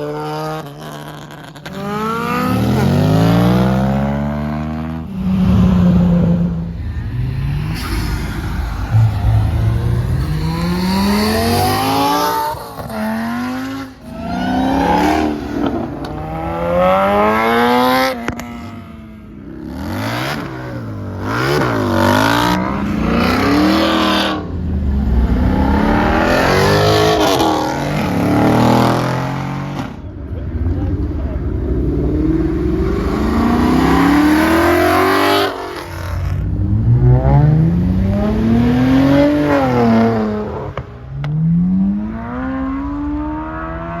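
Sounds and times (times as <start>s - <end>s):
car engines revving: 0.0s - 44.0s.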